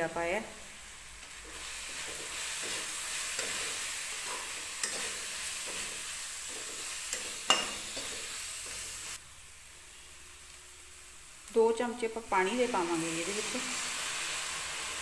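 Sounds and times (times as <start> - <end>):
spices sizzling in a pan: 0.0 - 15.0
metal spatula scraping pan: 1.5 - 8.9.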